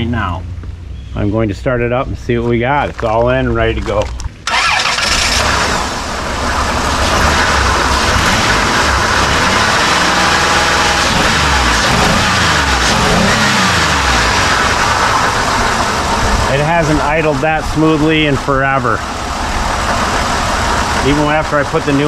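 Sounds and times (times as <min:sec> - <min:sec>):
car engine starting and idling: 0:00.0 - 0:22.0.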